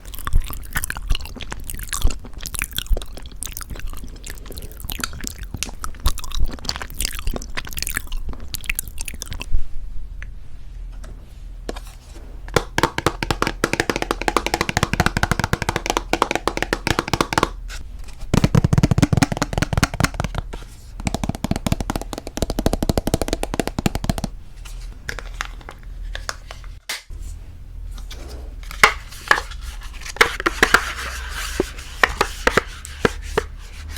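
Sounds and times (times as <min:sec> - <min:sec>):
wet mouth sounds and chewing: 0:00.0 - 0:09.6.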